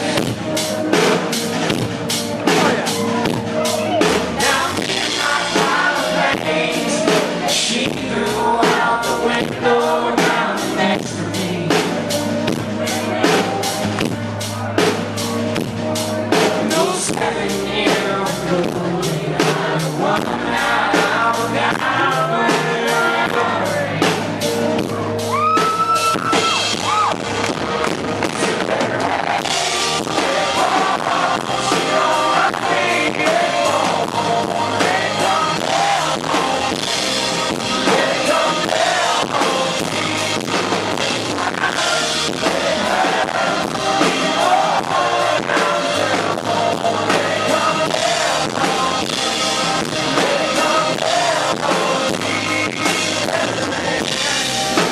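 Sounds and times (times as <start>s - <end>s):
man singing: 0.0s - 1.0s, 2.4s - 13.9s, 16.2s - 25.0s, 28.3s - 54.9s
country-rock band playing: 0.0s - 54.9s.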